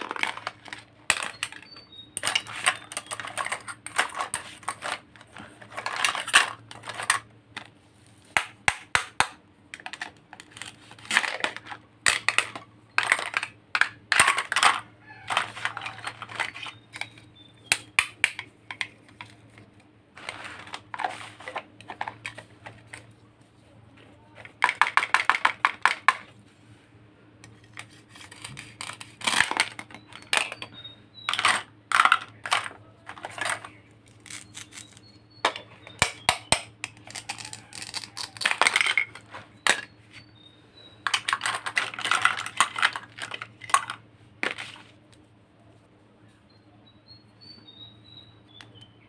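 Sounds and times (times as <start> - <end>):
plastic toy pieces clicking: 0.0 - 7.2, 8.4 - 19.2, 24.5 - 26.2, 27.8 - 30.7, 31.3 - 39.9, 41.0 - 44.0.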